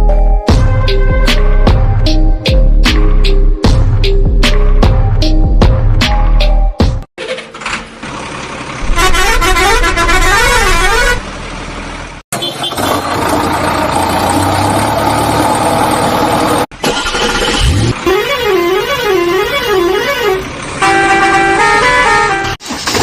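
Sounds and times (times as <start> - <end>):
steady vehicle drone: 8.0 - 12.2
vehicle horn warbling: 8.8 - 11.3, 12.4 - 13.0, 18.0 - 22.6.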